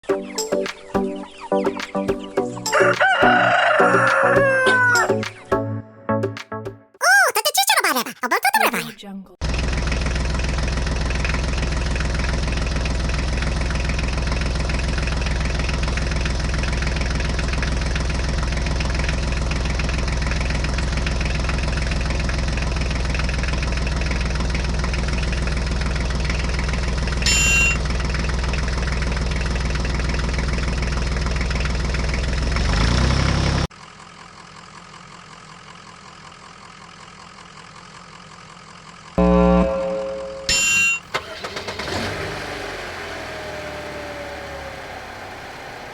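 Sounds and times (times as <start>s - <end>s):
tractor engine idling: 9.6s - 27.2s, 41.0s - 42.4s
bell-like ding: 27.3s - 27.8s, 39.4s - 41.0s
short loud tone: 27.3s - 27.8s, 39.2s - 41.1s.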